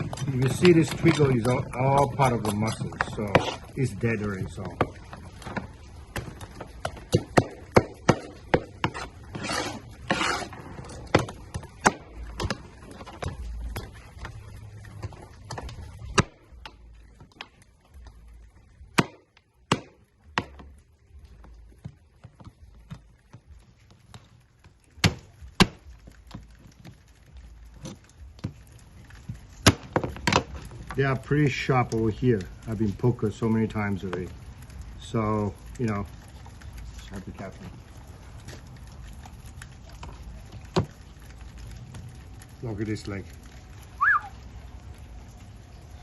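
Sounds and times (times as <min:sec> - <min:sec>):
scraping: 0:00.0 - 0:17.7.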